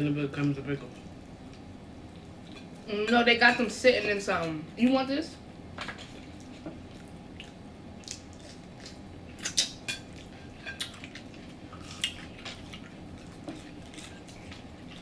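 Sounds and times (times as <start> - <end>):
food crunching: 5.9 - 15.0.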